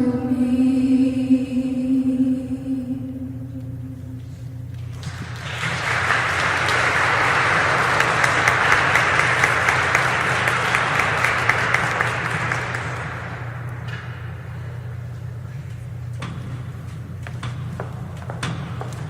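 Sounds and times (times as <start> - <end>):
audience applauding: 4.9 - 13.7.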